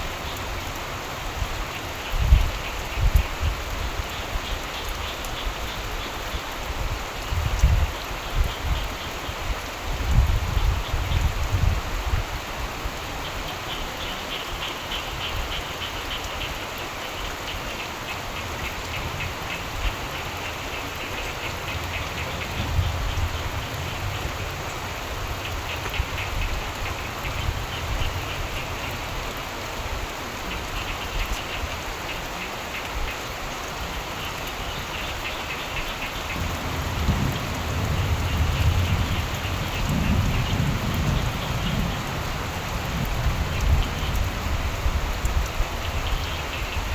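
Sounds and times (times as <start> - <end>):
steady rain falling: 0.0 - 46.9
frogs calling in trills: 13.2 - 29.4, 30.4 - 46.9
distant thunder rumble: 36.2 - 46.3.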